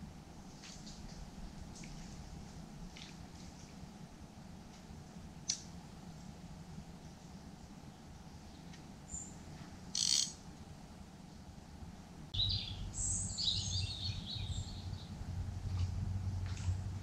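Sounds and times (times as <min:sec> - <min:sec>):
small birds chirping: 0:07.8 - 0:10.4, 0:12.3 - 0:15.3
low rumble: 0:12.4 - 0:17.0.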